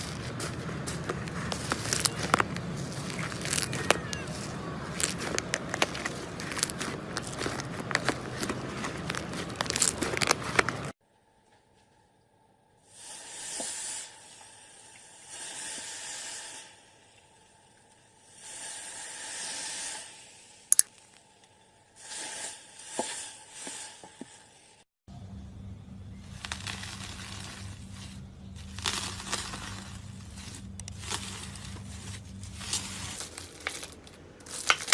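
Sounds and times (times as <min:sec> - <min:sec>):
slime squishing and popping: 0:28.6 - 0:30.0.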